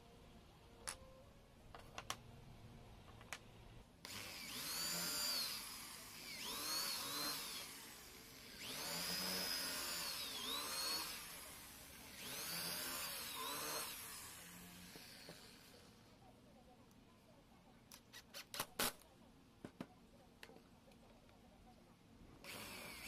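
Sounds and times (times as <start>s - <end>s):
small power tool motor whining: 4.0s - 16.0s, 22.4s - 23.0s.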